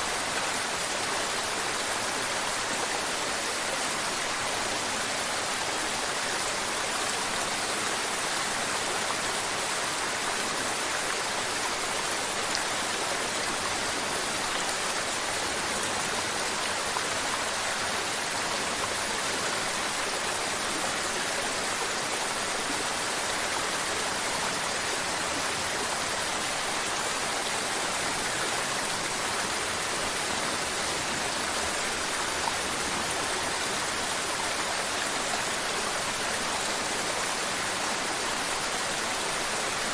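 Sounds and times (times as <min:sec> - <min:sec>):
river water babbling: 0:00.0 - 0:39.9.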